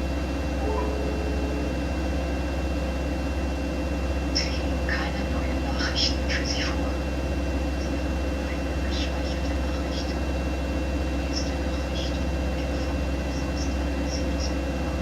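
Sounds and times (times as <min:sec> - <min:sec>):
high whine: 0:00.0 - 0:05.8
washing machine motor hum: 0:00.0 - 0:15.0.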